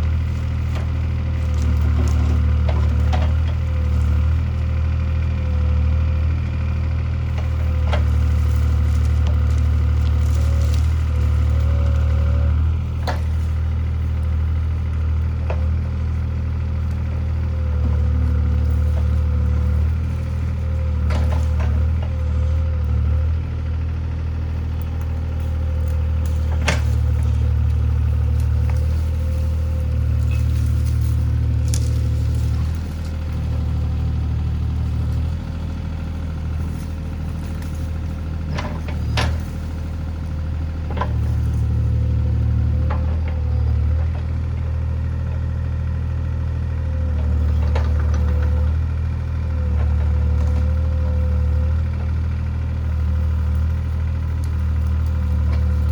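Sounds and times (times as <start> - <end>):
wood splintering: 0.0 - 6.0, 7.2 - 23.4, 24.4 - 44.4
diesel engine running: 0.0 - 55.9.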